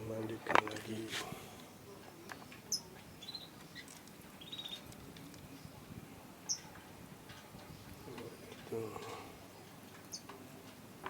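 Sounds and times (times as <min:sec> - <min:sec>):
lovebird chirping: 0:01.7 - 0:05.8, 0:06.5 - 0:06.7, 0:09.3 - 0:10.3.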